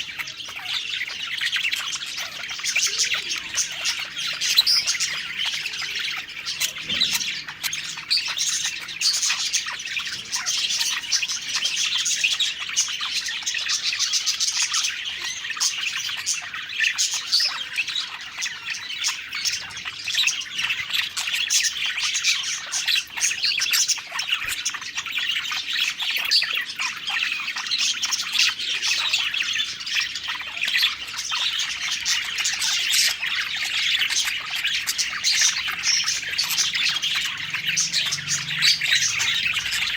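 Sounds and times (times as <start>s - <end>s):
budgerigars chirping and warbling: 0.0s - 39.9s.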